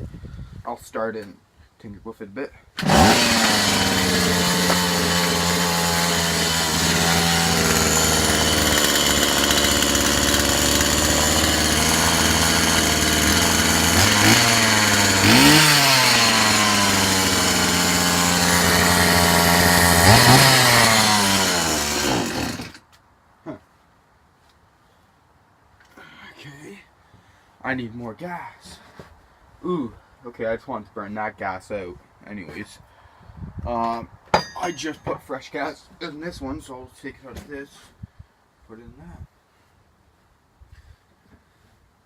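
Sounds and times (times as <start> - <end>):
chainsaw engine idling: 2.8 - 22.8
chainsaw throttle revs: 2.8 - 22.8.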